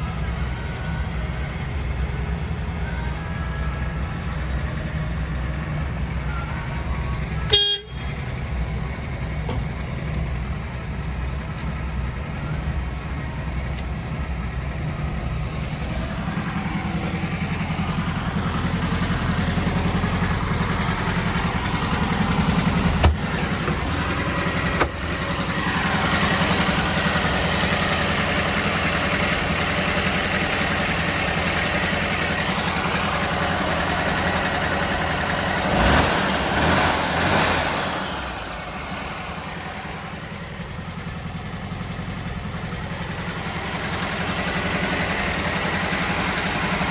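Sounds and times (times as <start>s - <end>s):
engine idling: 0.0s - 46.9s.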